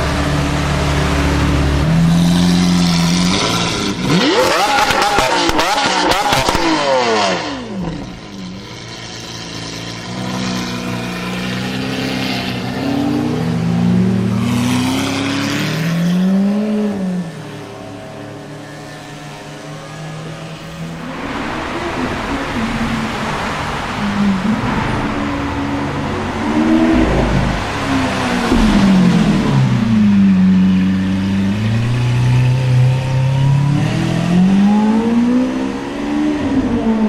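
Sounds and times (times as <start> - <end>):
car engines revving: 0.0 - 37.0
sports car engine running: 25.0 - 34.2.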